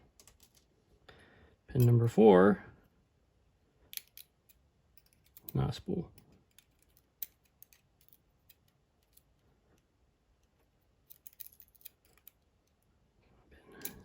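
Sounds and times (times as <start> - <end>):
small metal lock pins clicking: 3.9 - 5.6, 6.2 - 9.3, 10.4 - 12.8, 13.8 - 14.0.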